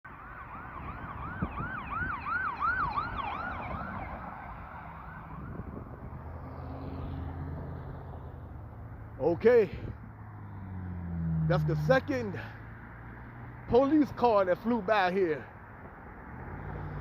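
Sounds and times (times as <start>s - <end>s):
police siren yelping: 0.1s - 6.2s
street traffic noise: 0.1s - 17.0s.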